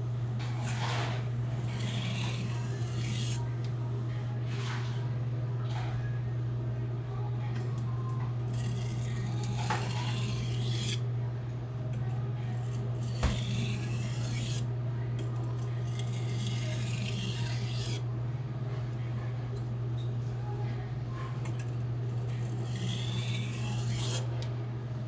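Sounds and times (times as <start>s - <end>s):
steady low hum: 0.0s - 25.0s
knife scraping on whetstone: 0.4s - 3.5s, 8.5s - 11.0s, 12.6s - 14.7s, 15.8s - 18.0s, 22.2s - 24.3s.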